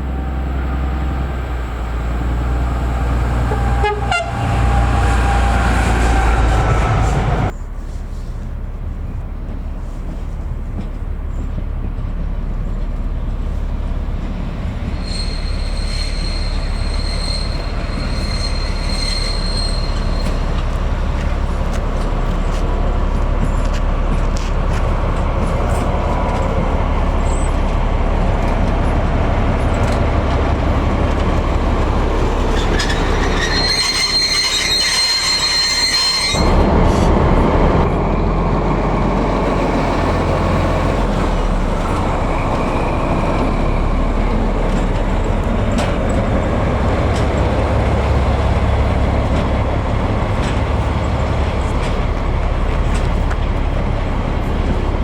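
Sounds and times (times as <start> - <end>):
diesel locomotive engine: 0.0 - 55.0
high-pitched wheel squeal: 15.0 - 20.7, 32.0 - 37.1.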